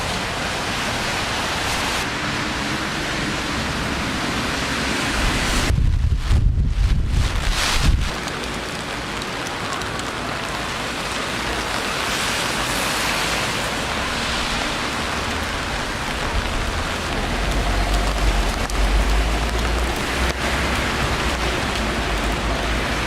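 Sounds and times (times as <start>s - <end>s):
rain falling on street: 0.0s - 23.0s
low rumble: 5.2s - 8.2s.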